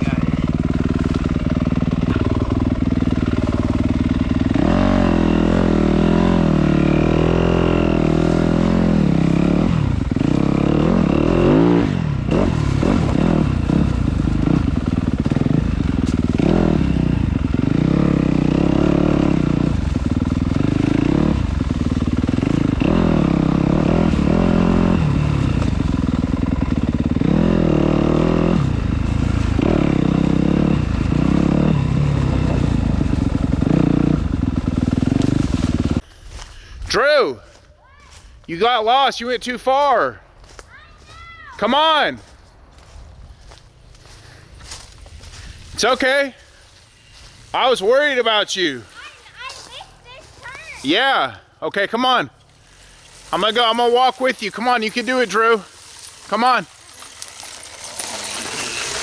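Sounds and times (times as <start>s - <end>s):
dirt bike engine revving: 0.0s - 36.0s, 52.4s - 59.0s.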